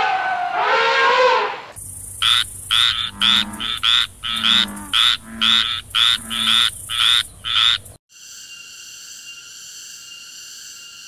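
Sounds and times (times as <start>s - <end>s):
frog croaking: 1.8s - 8.0s.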